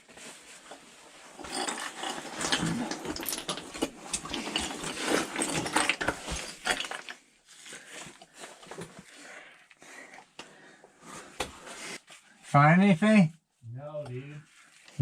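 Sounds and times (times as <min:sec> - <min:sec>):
scraping and rustling of caving gear: 0:00.0 - 0:12.7, 0:14.2 - 0:15.0.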